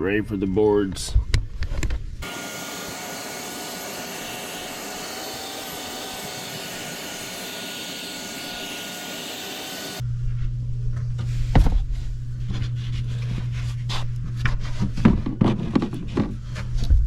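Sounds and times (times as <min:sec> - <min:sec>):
vacuum cleaner running: 0:02.2 - 0:10.0.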